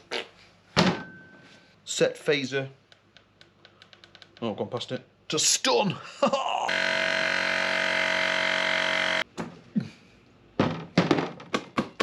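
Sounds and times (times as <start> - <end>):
toy phaser buzzing tone: 6.7 - 9.2.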